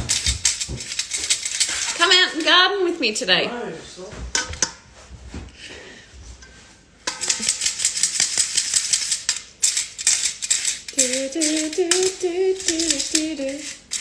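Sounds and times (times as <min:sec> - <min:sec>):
sugar shaken through a sieve: 0:00.0 - 0:02.6, 0:07.1 - 0:14.0
woman humming: 0:11.0 - 0:13.8.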